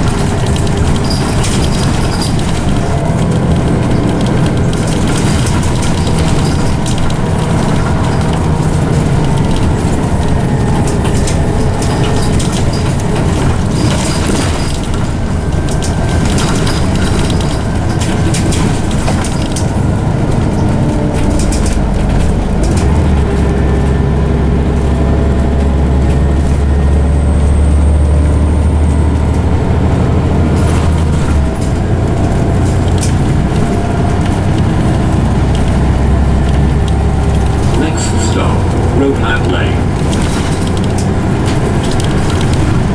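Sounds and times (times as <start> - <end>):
bus engine running: 0.0 - 42.9
rattles and knocks from bus body: 0.0 - 42.9
gearbox whine: 31.1 - 42.9.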